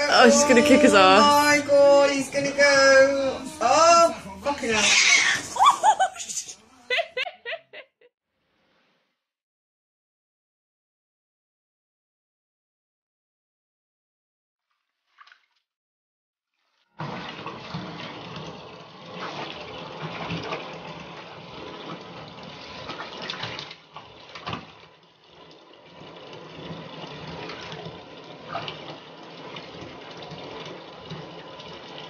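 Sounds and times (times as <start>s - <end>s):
water pouring into bathtub: 0.0s - 6.0s, 16.6s - 32.0s.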